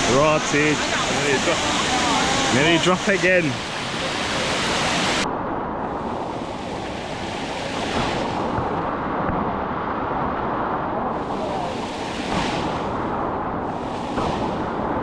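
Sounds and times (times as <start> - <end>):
waterfall rushing over rock: 0.0 - 5.2.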